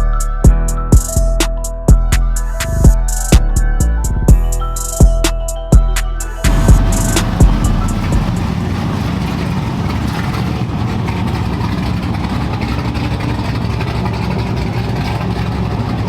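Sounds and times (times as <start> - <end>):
truck engine rumbling: 0.0 - 16.0
sharp loud thumps: 6.5 - 9.2.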